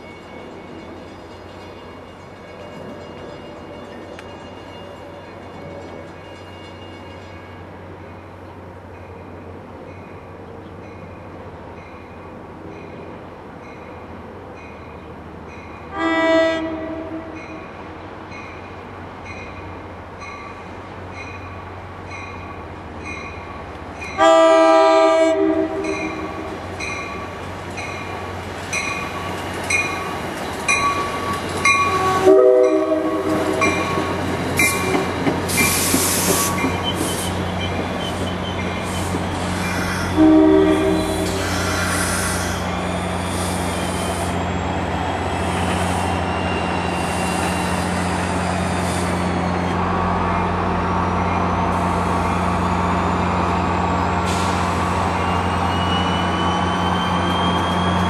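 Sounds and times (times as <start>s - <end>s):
train wheels rumbling past: 0.0s - 58.0s
train horn blasts: 15.9s - 17.4s, 24.2s - 26.5s, 31.8s - 33.9s, 39.8s - 41.6s.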